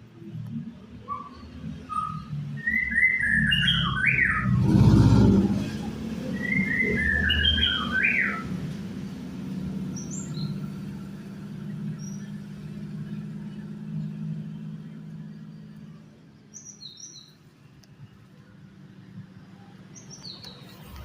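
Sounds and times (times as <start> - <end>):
songbird whistling: 1.1 - 4.6, 6.3 - 8.5.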